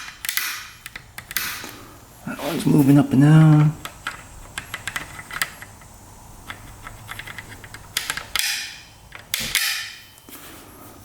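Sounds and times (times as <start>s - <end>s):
small metallic clicks and creaks: 3.5s - 10.3s.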